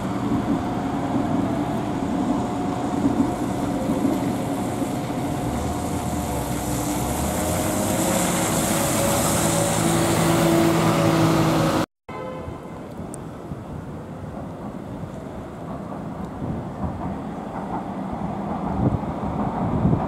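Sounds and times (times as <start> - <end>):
vehicle rumble: 0.0 - 11.9.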